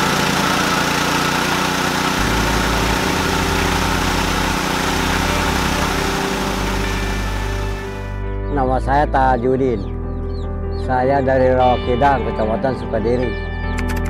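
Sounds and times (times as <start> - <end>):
rice milling machine running: 0.0 - 8.1.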